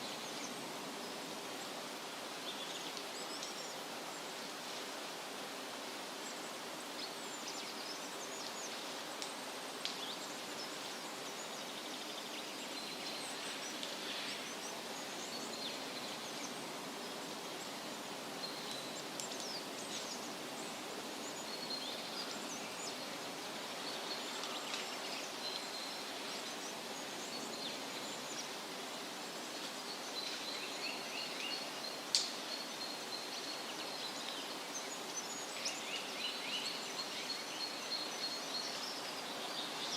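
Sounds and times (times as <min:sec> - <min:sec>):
wind rustling leaves: 0:00.0 - 0:39.9
small birds chirping: 0:06.2 - 0:39.9.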